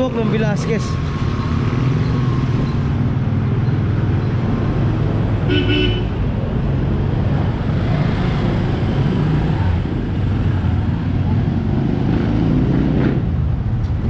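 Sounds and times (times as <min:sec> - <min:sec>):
street traffic: 0:00.0 - 0:14.0
horn toot: 0:05.5 - 0:06.2.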